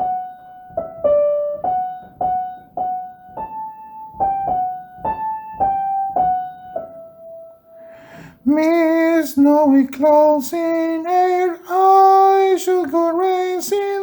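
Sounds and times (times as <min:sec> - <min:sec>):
piano single-note melody: 0:00.0 - 0:07.9.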